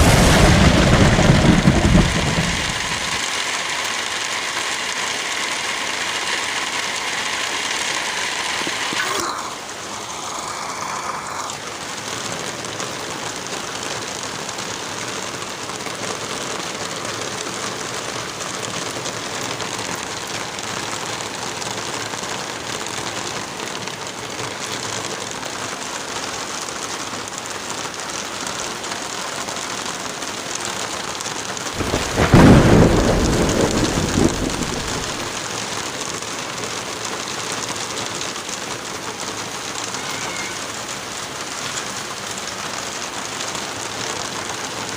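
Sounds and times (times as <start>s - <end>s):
thunderclap rumbling: 0.0s - 3.2s, 31.8s - 35.4s
heavy rain falling: 0.0s - 44.9s.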